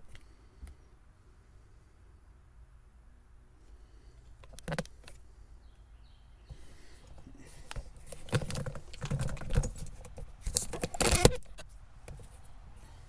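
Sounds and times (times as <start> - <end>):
clicks and rattles of handling: 4.4 - 5.2, 7.1 - 12.4.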